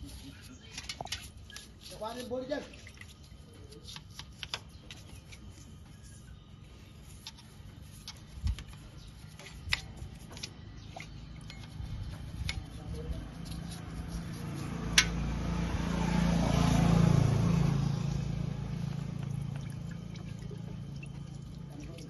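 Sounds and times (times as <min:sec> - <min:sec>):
low hum: 0:05.1 - 0:22.0
vehicle passing by: 0:13.0 - 0:21.8.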